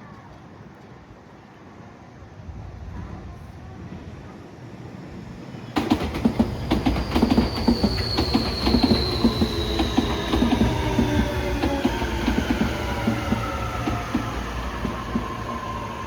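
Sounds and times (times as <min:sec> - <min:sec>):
electric train passing: 0:04.3 - 0:16.0.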